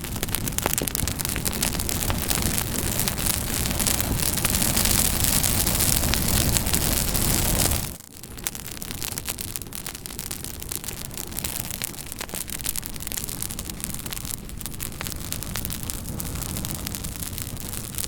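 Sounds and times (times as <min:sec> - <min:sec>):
campfire crackling: 0:00.0 - 0:18.0
loud rushing hiss with pops: 0:00.0 - 0:18.0.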